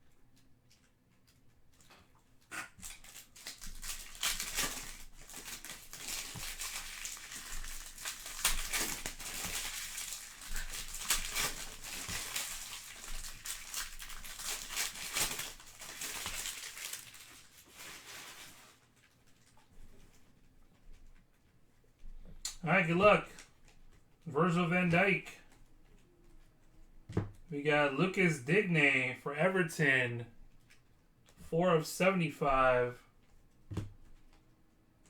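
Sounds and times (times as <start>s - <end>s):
wrappers crinkling and tearing: 2.8s - 19.7s.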